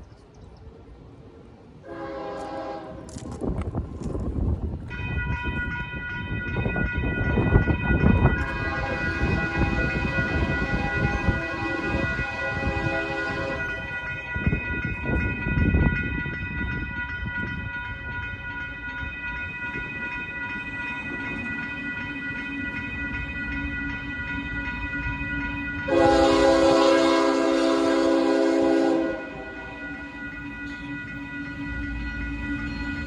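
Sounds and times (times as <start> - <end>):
rail noise: 0.0 - 33.0
train horn: 1.8 - 3.3, 8.4 - 14.0, 25.8 - 30.3.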